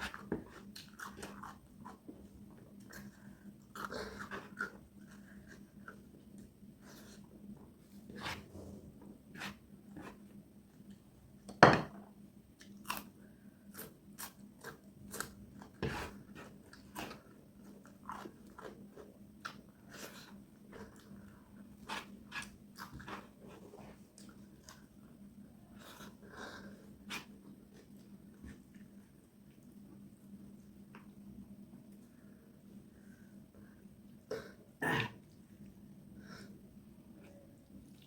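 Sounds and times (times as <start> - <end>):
chewing and crunching food: 0.0 - 7.3, 12.6 - 29.8.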